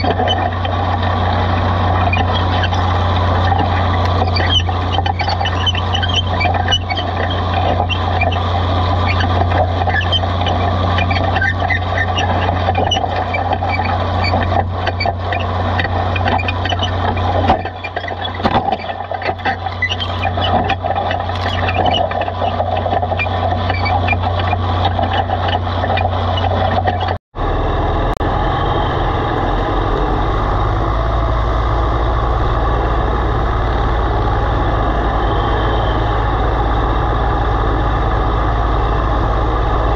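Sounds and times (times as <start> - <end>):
plow frame clicks and rattles: 0.0 - 27.2
low-pitched tractor engine working: 0.0 - 39.9
tractor engine droning: 0.0 - 39.9.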